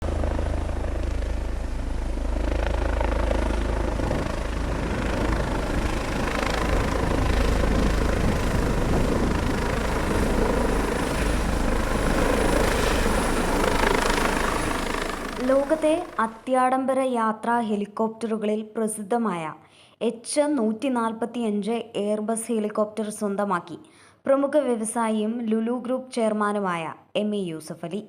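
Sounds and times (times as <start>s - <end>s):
helicopter rotor and engines running: 0.0s - 16.5s.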